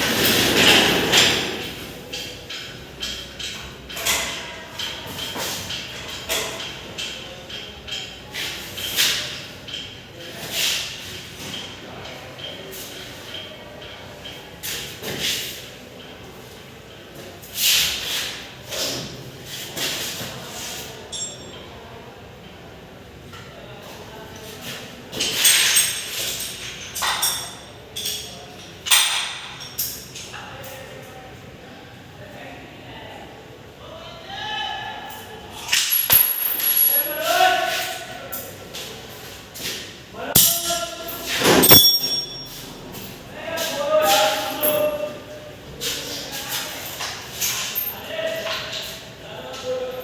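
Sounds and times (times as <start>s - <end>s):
metal tools clinking: 21.1s - 21.7s, 25.2s - 30.4s, 35.5s - 38.6s, 40.4s - 43.7s, 44.3s - 45.2s, 46.8s - 49.1s
metallic tool clicks and knocks: 35.7s - 37.2s, 41.6s - 42.4s.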